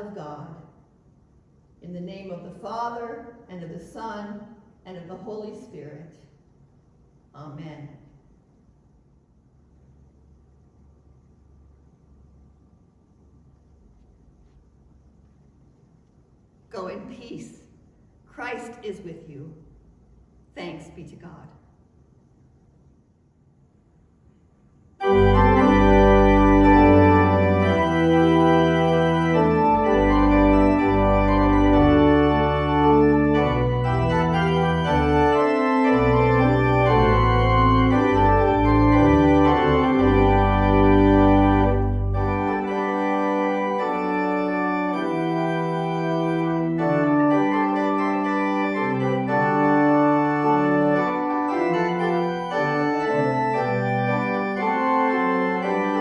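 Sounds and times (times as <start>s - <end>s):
deep organ bass notes: 25.0s - 56.0s
organ chords: 25.0s - 56.0s.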